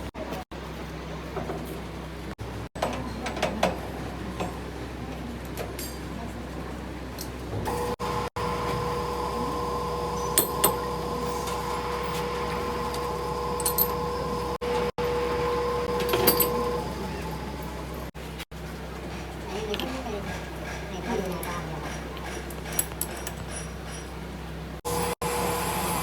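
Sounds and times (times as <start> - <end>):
machine humming: 7.7 - 18.2.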